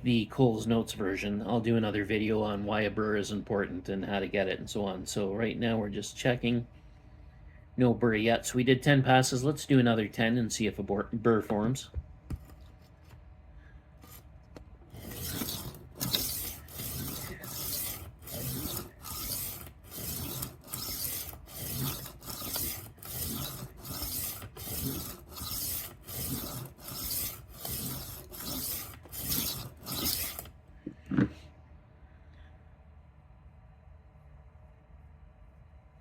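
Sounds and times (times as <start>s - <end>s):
knife sharpener rasping on blade: 14.9s - 30.5s.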